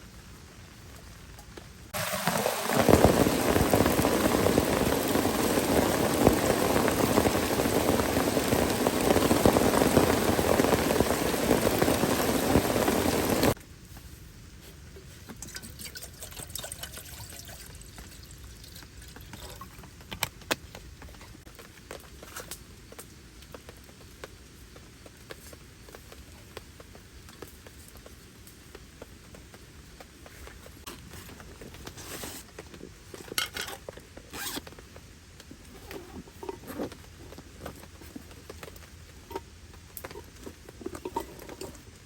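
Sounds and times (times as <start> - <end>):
rain pattering on tent: 0.0 - 42.0
water trickling and dripping: 15.3 - 20.2
zipper rasping: 34.3 - 34.7.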